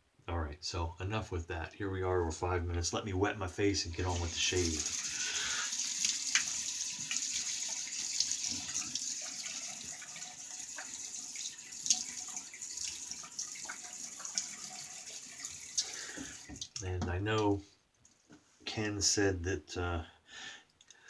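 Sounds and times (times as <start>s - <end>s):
water splashes: 4.0s - 16.8s
tap water running into a sink: 4.0s - 16.9s.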